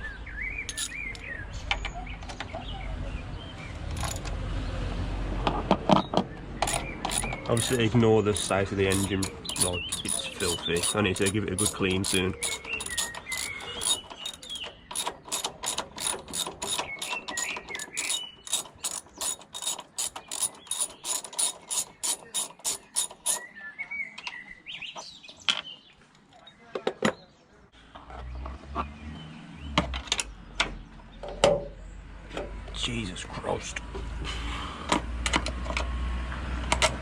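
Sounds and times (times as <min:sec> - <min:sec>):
socket ratchet clicking: 0:00.7 - 0:01.2, 0:03.9 - 0:04.3, 0:06.6 - 0:23.5.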